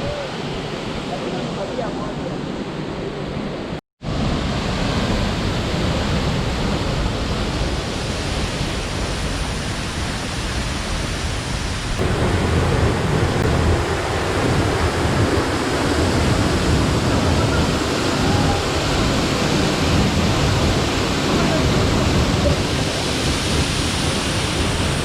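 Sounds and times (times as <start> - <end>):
waterfall rushing: 4.1 - 25.0.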